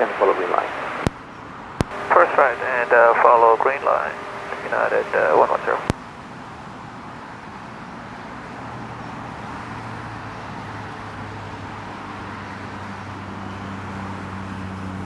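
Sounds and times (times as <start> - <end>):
distant jet engines rumbling: 0.0 - 1.1, 1.9 - 5.9
low hum: 0.0 - 1.1, 1.9 - 5.9.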